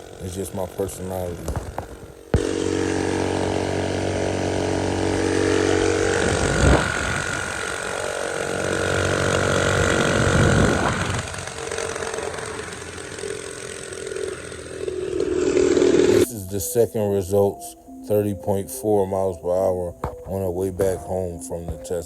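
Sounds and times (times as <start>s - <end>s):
engine whine with rushing noise: 0.0s - 16.3s
small engine running: 0.0s - 16.3s.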